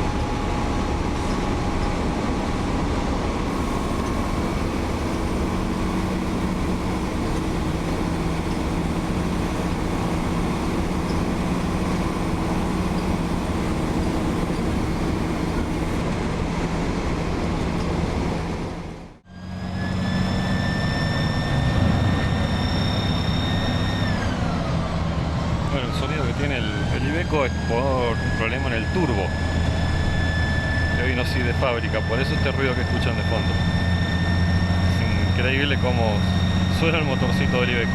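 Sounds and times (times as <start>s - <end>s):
diesel bus engine drone: 0.0s - 37.9s
shrill turbo whistle: 19.3s - 24.5s, 27.6s - 37.9s.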